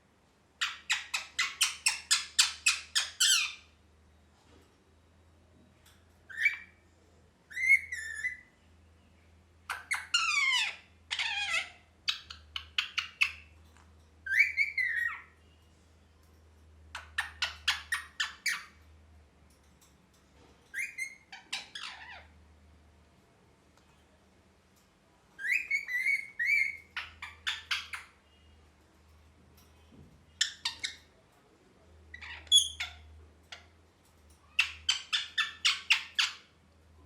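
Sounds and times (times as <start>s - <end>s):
parrot squawking: 0.6s - 3.7s, 9.7s - 13.5s, 14.3s - 15.4s, 20.7s - 22.3s, 25.4s - 28.1s, 34.6s - 36.5s
parrot whistles and chirps: 6.3s - 6.8s, 7.5s - 8.5s, 14.2s - 15.3s, 20.7s - 21.3s, 25.4s - 28.0s.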